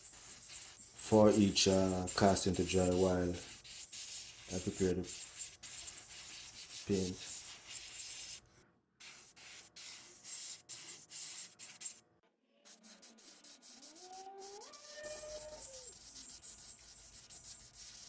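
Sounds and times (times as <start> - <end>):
paint spraying hiss: 0.0 - 8.4, 9.0 - 12.0, 12.7 - 18.0
wavering rising tone: 13.9 - 15.9.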